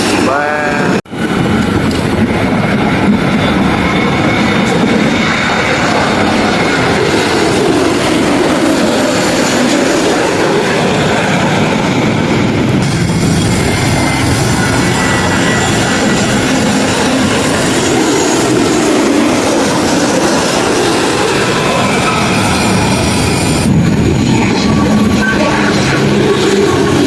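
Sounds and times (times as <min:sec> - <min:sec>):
jet engine roaring: 0:00.0 - 0:27.0.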